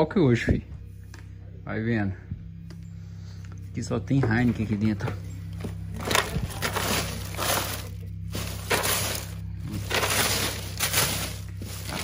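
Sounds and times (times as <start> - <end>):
steady low hum: 0.0 - 12.0
glass bottles clattering in ice: 5.6 - 12.0.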